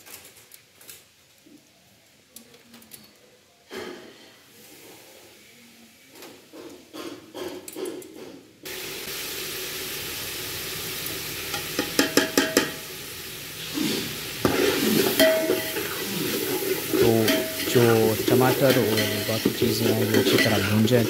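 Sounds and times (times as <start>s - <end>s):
food sizzling in a metal pot: 8.6s - 21.0s
ladle knocking against a pot: 11.8s - 12.8s, 18.7s - 20.7s
ladle scraping a pot: 14.4s - 21.0s.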